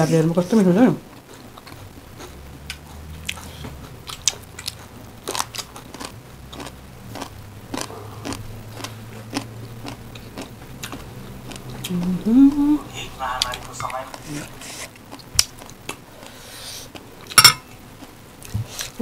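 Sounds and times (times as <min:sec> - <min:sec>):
chewing food: 0:01.1 - 0:12.7, 0:14.9 - 0:19.0.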